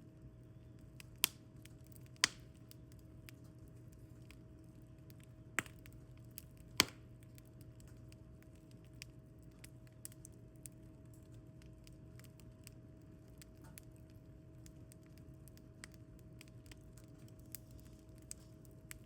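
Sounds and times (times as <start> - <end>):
wood fire crackling: 0.0 - 19.0
faint pops of fire: 1.0 - 4.4, 5.0 - 8.0.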